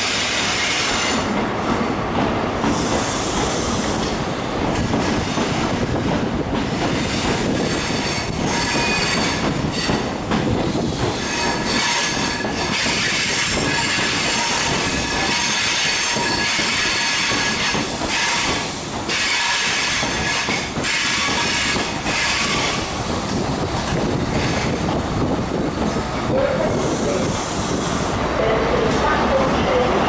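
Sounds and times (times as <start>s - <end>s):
train wheels squealing on rails: 0.0s - 1.3s, 2.6s - 4.1s, 6.7s - 10.1s, 10.7s - 22.9s
diesel locomotive passing: 0.0s - 30.0s.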